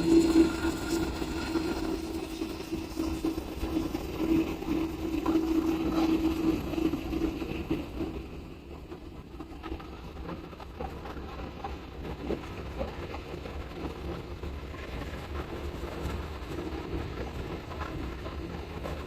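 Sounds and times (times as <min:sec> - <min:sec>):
jet engines droning: 0:00.0 - 0:08.7.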